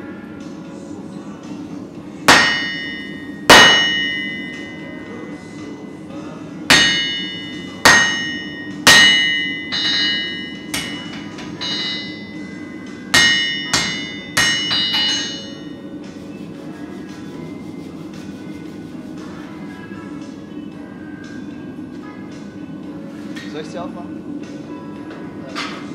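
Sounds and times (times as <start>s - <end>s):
hammer striking anvil: 2.3s - 4.8s, 6.7s - 12.4s, 13.1s - 15.7s.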